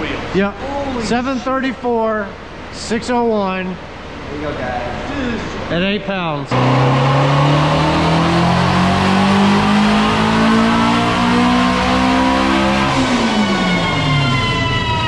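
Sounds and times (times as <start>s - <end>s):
car engine revving on a dyno: 6.5s - 15.0s.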